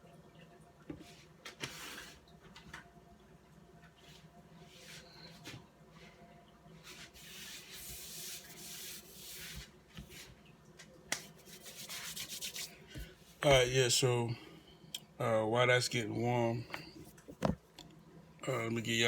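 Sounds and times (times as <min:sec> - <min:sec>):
rubbing and scuffing handling noise: 0:06.8 - 0:10.3, 0:11.1 - 0:13.4.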